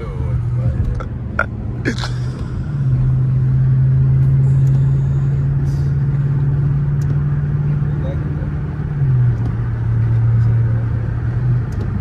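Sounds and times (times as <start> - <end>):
car engine droning from inside cabin: 0.0 - 12.0
road noise: 0.0 - 12.0.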